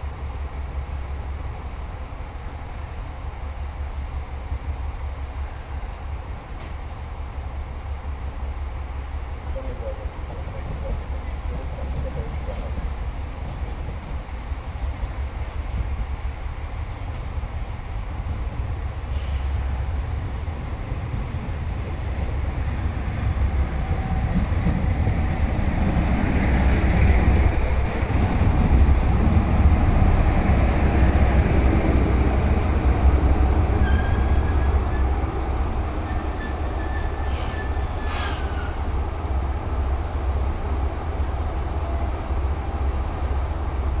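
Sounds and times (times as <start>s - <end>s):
diesel train rumble: 0.0s - 44.0s
short air hiss: 19.0s - 19.7s, 37.1s - 38.8s
wheel and brake squeal: 33.7s - 35.2s, 36.0s - 38.9s.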